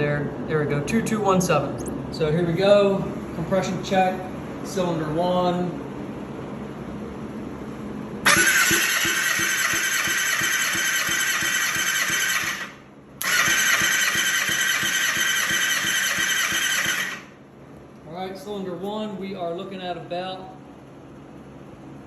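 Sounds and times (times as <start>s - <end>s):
engine cranking without firing: 8.3s - 17.4s.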